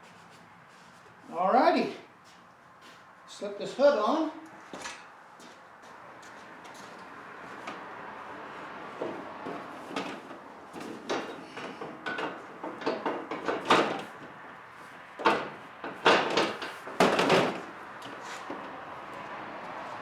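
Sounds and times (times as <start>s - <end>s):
tractor hood knocking and rattling: 9.0s - 14.4s, 15.2s - 18.7s.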